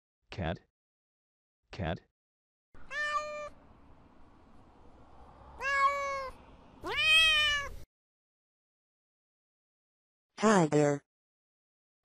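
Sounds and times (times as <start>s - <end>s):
cat meowing: 2.8s - 3.6s, 5.6s - 7.8s.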